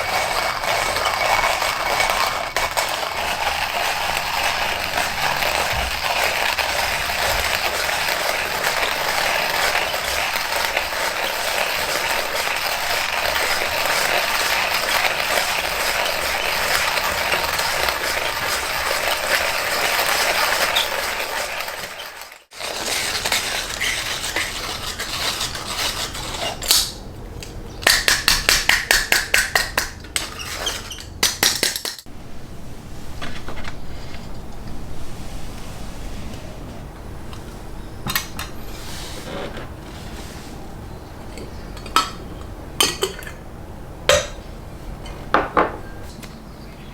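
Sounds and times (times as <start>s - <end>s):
coffee grinder grinding beans: 0.0s - 26.8s.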